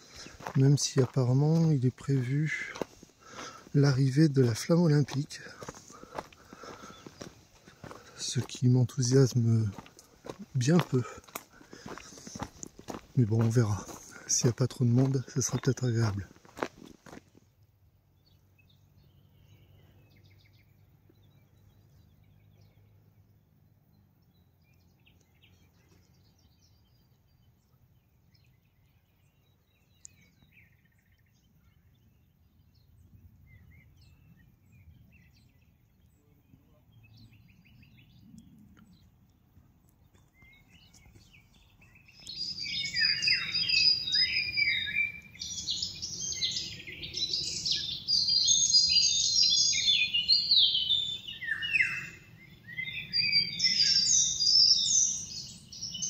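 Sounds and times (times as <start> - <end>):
bird singing loudly: 40.4 - 56.0.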